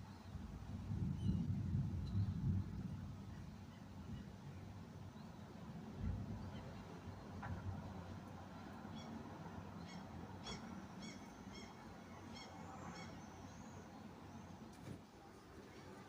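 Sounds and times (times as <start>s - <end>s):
bird high-pitched calls: 9.8s - 13.8s.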